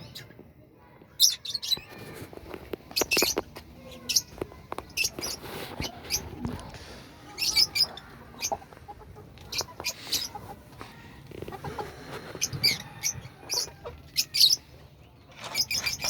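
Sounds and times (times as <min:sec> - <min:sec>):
budgerigars chirping: 0:09.4 - 0:10.4.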